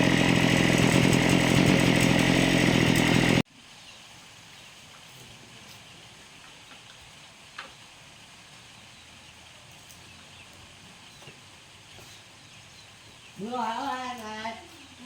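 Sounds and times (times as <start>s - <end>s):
faint outdoor background noise: 3.4s - 15.0s.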